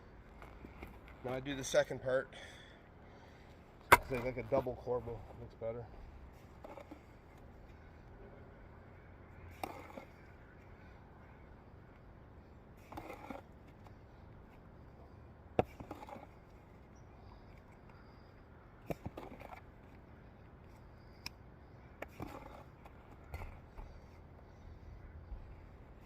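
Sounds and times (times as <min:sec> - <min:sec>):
trowel tapping and scraping brick: 0:15.6 - 0:16.3.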